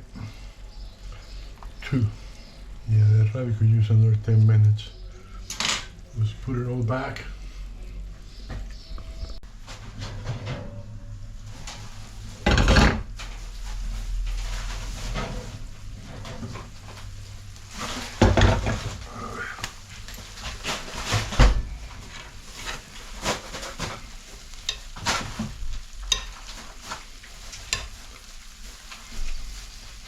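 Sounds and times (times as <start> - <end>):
clay roasting pan clattering: 12.4 - 30.0.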